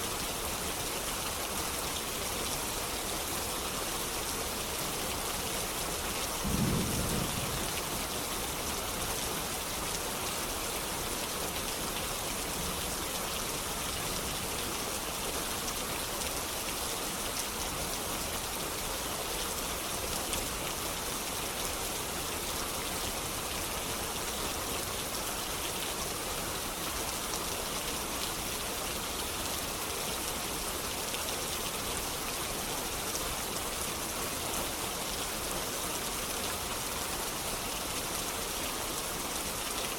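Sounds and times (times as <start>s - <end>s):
distant thunder rumble: 6.4s - 7.8s.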